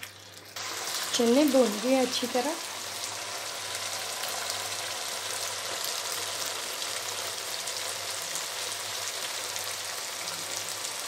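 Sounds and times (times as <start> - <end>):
chickpeas sizzling in a wok: 0.0 - 11.0.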